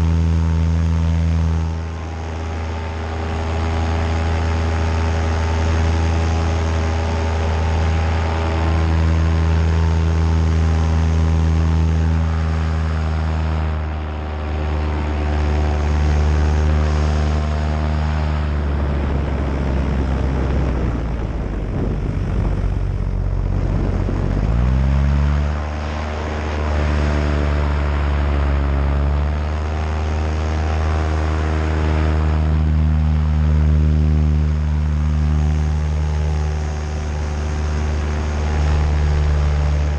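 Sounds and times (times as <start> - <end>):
paramotor engine and propeller: 0.0 - 39.9
air rushing: 18.6 - 26.8.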